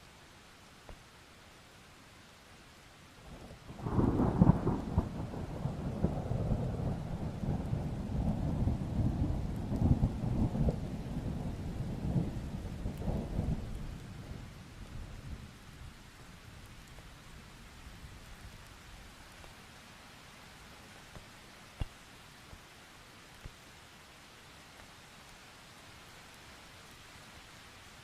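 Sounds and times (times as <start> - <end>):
light rain: 0.0 - 28.0
thunder rumbling: 3.8 - 14.4.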